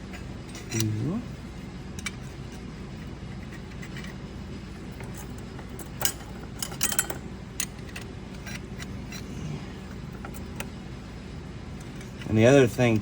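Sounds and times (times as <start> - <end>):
low steady hum: 0.0 - 13.0
metal clutch plates clinking: 5.0 - 9.2.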